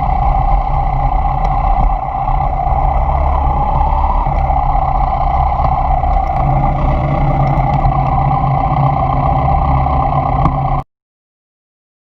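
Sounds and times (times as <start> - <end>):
motorcycle engine droning: 0.0 - 10.8.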